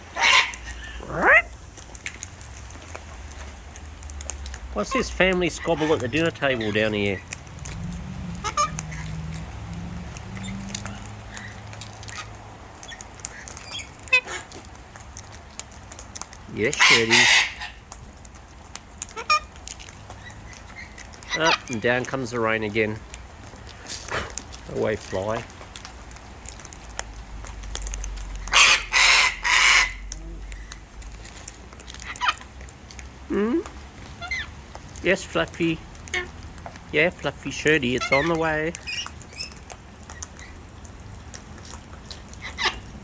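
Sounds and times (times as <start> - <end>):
cockatoo screeching: 0.0 - 1.6, 8.3 - 9.1, 16.7 - 17.8, 28.5 - 30.2, 42.4 - 42.9
parrot harsh chattering call: 0.0 - 1.6, 4.9 - 6.9, 8.3 - 9.0, 13.7 - 14.5, 16.7 - 17.8, 19.2 - 19.5, 28.4 - 30.1, 32.0 - 32.4, 34.2 - 34.5, 37.9 - 39.5, 42.4 - 42.9
beaks clicking and tapping: 0.0 - 43.0.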